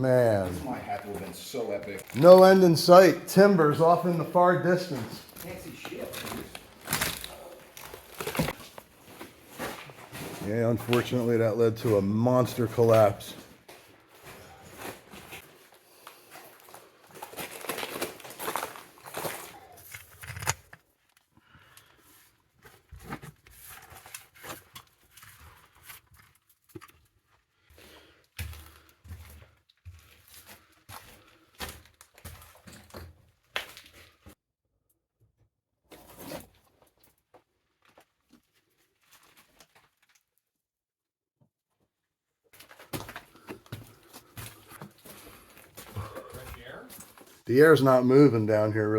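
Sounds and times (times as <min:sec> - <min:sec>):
footsteps crunching on loose rock: 0:42.6 - 0:47.4.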